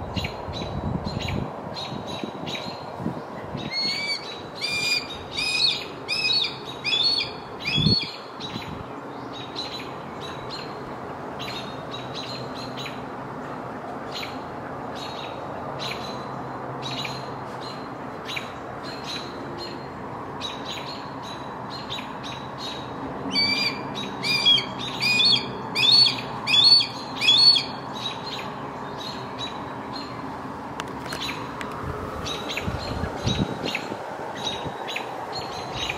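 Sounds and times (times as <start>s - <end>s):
bird chirping: 3.6s - 10.8s, 15.0s - 30.2s.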